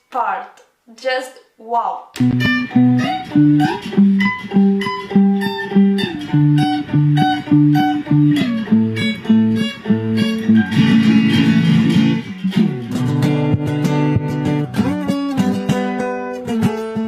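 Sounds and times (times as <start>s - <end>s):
fingerstyle guitar playing: 2.2s - 17.0s.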